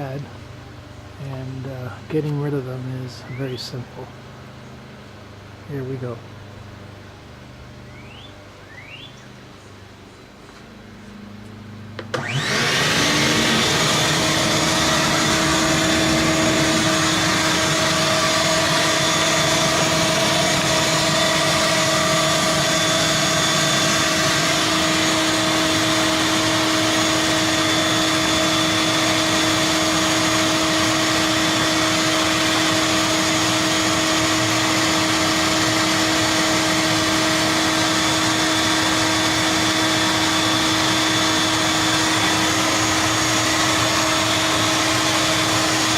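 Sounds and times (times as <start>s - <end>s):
shop vac motor running: 0.0s - 4.2s, 11.4s - 45.9s.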